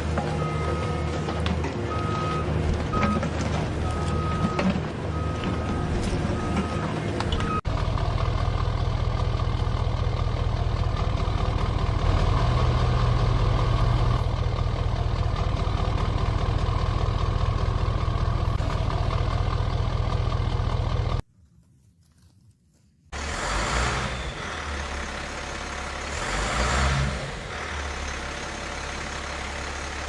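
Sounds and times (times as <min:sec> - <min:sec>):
vehicle engine idling: 0:03.7 - 0:21.2, 0:24.1 - 0:26.6, 0:27.2 - 0:30.0.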